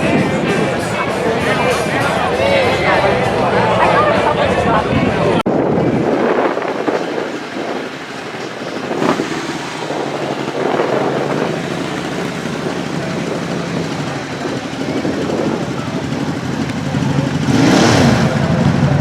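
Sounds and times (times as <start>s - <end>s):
motor vehicle running: 0.0s - 19.0s
outdoor noise: 0.0s - 19.0s
faint low engine hum: 6.1s - 19.0s.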